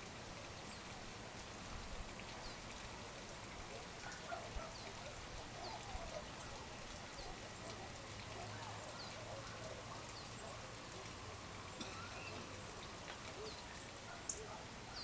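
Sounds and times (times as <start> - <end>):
lower bird calls: 11.8 - 15.0.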